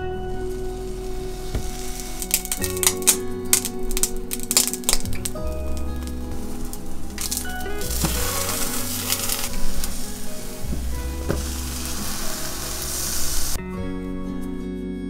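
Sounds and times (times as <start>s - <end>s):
eggplant sizzling in pan: 6.2s - 13.6s.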